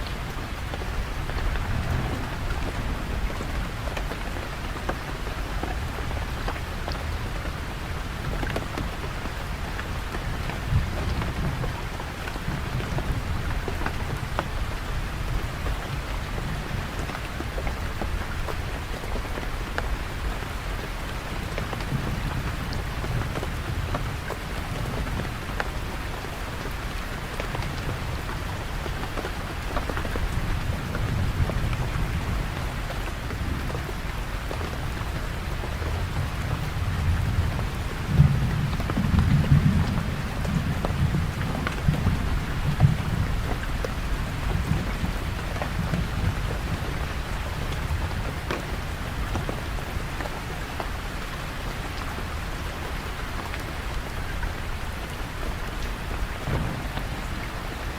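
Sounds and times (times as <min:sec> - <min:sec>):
steady rain falling: 0:00.0 - 0:57.9
low rumble: 0:00.9 - 0:04.2.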